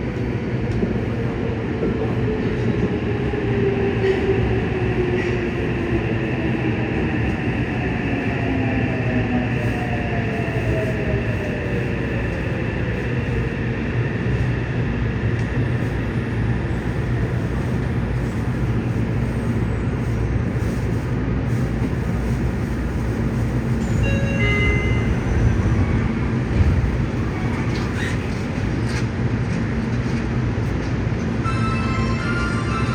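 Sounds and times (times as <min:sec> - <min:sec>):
subway train rumbling: 0:00.0 - 0:32.9.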